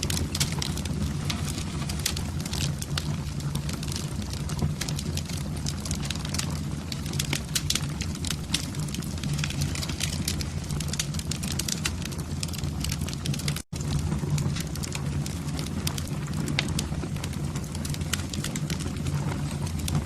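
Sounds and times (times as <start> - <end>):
fire crackling: 0.0 - 20.0
low fire rumble: 0.0 - 20.0.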